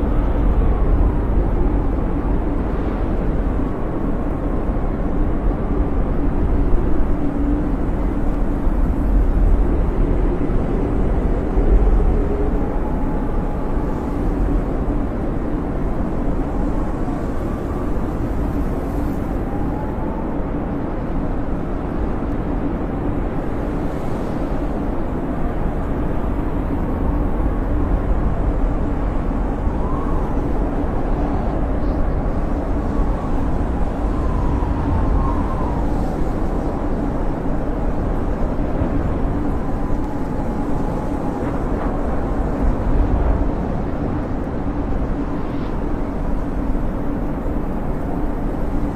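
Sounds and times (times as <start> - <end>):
snowstorm wind rumbling: 0.0 - 48.9
faint whistling howl: 29.4 - 37.0.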